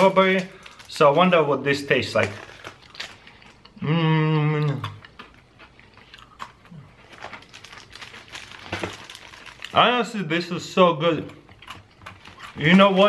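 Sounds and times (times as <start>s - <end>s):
person humming: 3.8s - 5.0s
crunchy biscuit chewing: 4.6s - 9.8s, 11.4s - 13.0s.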